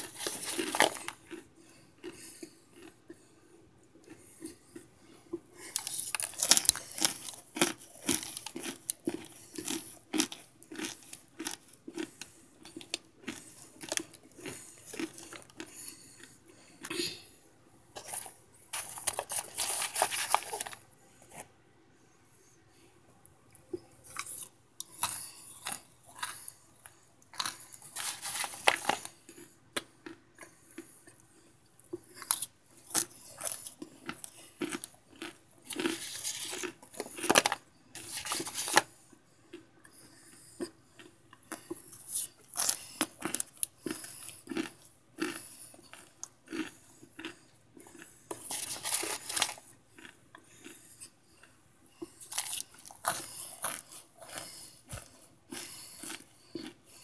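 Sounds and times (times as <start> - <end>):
person chewing crunchy food: 0.0 - 17.3, 18.0 - 21.5, 23.5 - 57.0.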